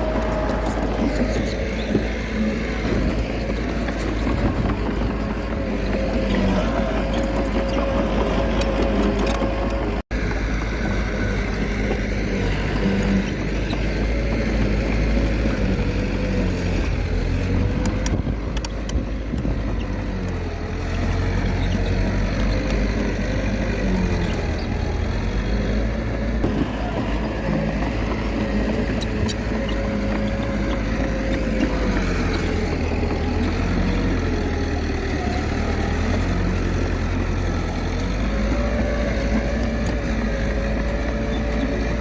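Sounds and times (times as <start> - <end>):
bulldozer diesel engine under load: 0.0 - 42.0.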